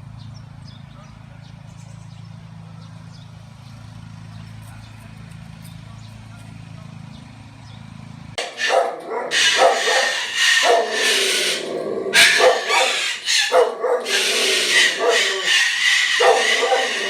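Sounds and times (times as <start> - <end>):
steady low hum: 1.7 - 17.0
cockatoo screaming: 8.4 - 17.0.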